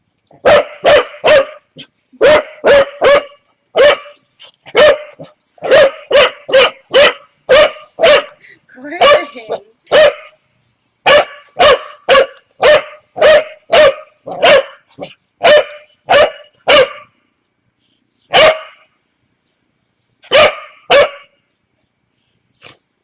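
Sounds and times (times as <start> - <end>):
puppy barking: 0.4 - 8.4, 9.0 - 10.4, 11.0 - 17.1, 18.3 - 18.8, 20.3 - 21.3.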